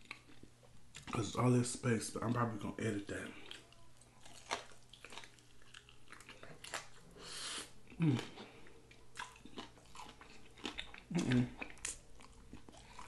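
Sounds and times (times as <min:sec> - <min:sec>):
wet chewing and lip smacking: 0:03.4 - 0:07.1, 0:07.8 - 0:13.0
breathy hiss: 0:07.2 - 0:07.8.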